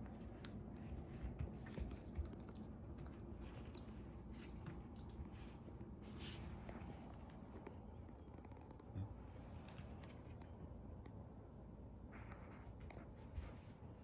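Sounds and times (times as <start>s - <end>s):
puppy chewing and gnawing: 0.4s - 5.8s.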